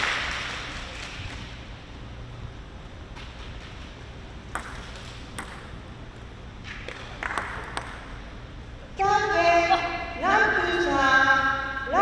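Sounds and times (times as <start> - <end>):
low hum of hall: 0.0 - 12.0
table tennis ball clicking: 4.5 - 5.7.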